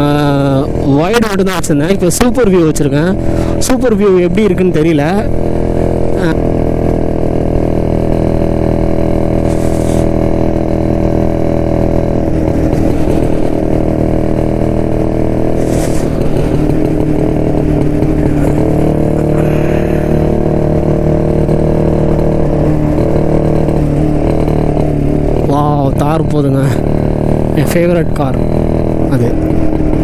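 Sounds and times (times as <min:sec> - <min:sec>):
two-stroke motorcycle engine: 0:00.0 - 0:30.0
short hissing rushes: 0:15.6 - 0:16.2.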